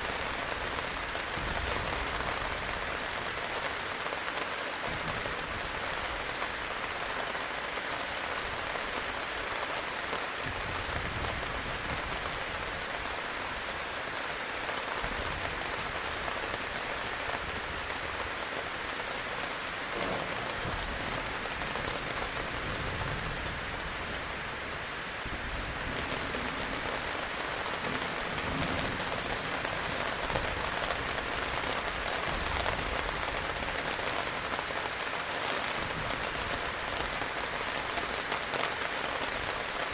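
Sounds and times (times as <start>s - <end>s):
heavy rain: 0.0s - 39.9s
distant thunder rumbling: 19.9s - 24.3s, 25.3s - 33.3s.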